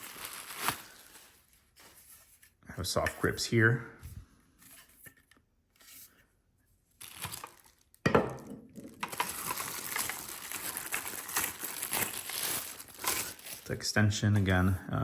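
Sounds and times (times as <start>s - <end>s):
packaging crinkling and tearing: 0.0s - 1.9s, 7.0s - 8.1s, 8.8s - 13.8s.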